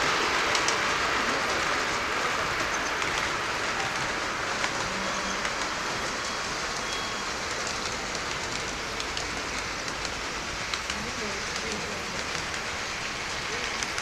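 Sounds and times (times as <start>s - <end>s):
model train wheels rolling hiss: 0.0s - 14.0s.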